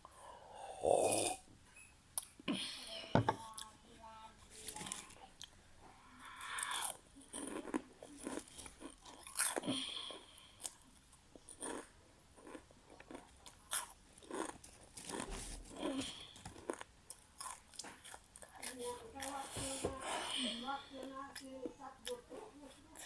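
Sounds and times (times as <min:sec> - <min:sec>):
crunching and wet chewing: 0:06.3 - 0:19.4.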